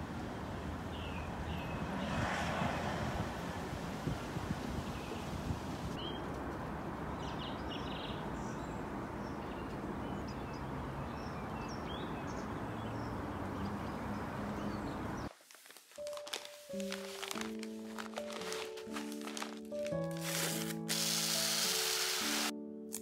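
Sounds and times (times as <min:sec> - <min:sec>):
outdoor background noise: 0:00.0 - 0:16.3
small birds chirping: 0:07.1 - 0:15.3.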